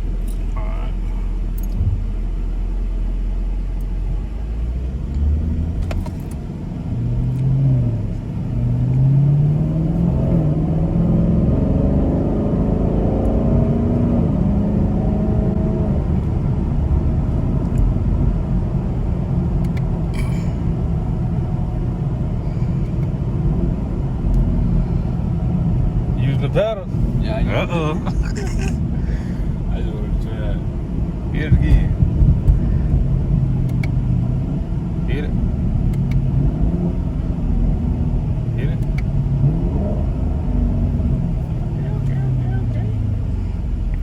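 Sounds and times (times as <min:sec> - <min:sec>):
car engine accelerating: 0:00.0 - 0:44.0
low road rumble: 0:00.0 - 0:44.0.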